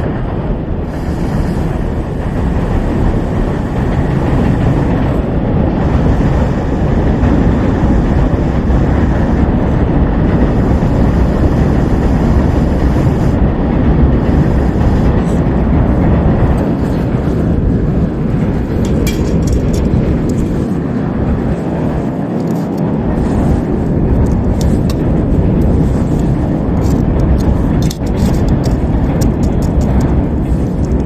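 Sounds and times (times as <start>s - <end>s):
fire rumbling: 0.0s - 31.0s
fire crackling pops: 13.1s - 31.0s.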